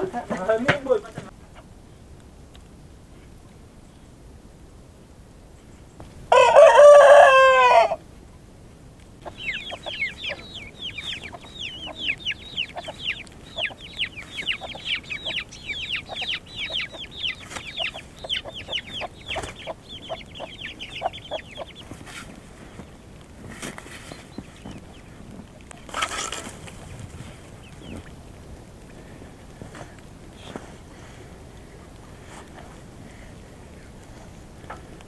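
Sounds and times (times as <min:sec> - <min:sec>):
rooster crowing: 0:06.3 - 0:08.0, 0:09.3 - 0:21.8.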